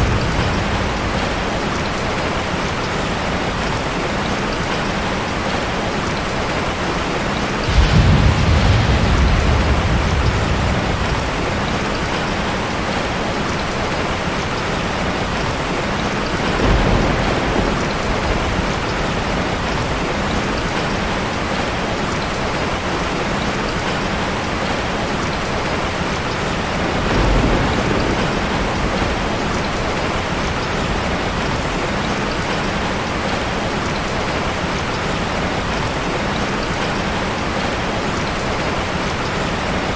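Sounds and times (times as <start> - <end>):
low rumbles of thunder: 0.0 - 3.7, 7.6 - 14.1, 15.2 - 21.6, 26.5 - 33.5
heavy rain falling: 0.0 - 39.9.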